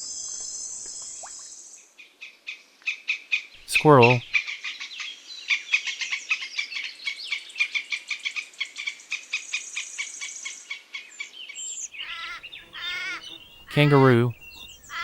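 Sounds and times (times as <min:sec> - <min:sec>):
squirrel chattering: 0:12.1 - 0:15.0.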